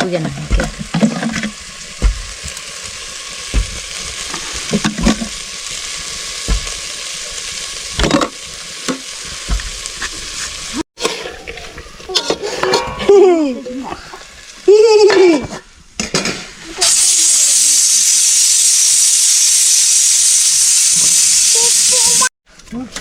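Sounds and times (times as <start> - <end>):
spoon scraping and knocking pan: 0.0 - 2.5, 3.5 - 5.4, 12.1 - 13.3
food sizzling in a pan: 0.0 - 22.3.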